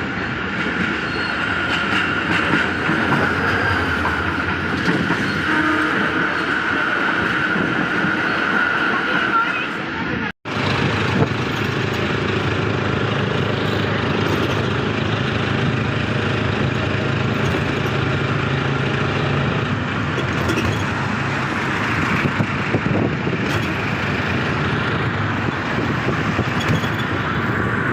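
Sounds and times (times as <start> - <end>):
passenger train rumbling and rattling: 0.0 - 27.9.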